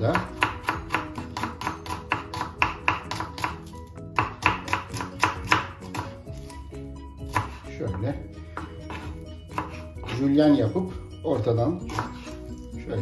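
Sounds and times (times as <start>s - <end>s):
knife chopping on wooden board: 0.0s - 6.5s, 7.2s - 10.3s, 11.9s - 12.4s
background music: 0.0s - 13.0s.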